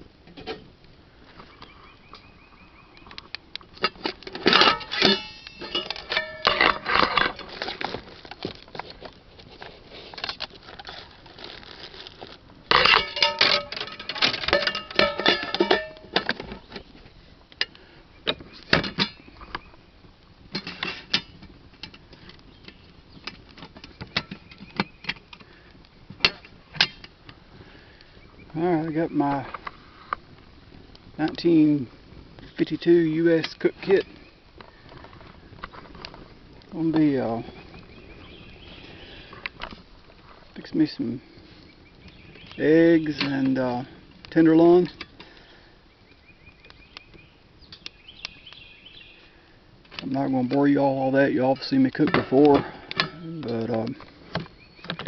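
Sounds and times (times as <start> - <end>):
metal cookware clattering: 3.8 - 7.8, 12.7 - 16.4.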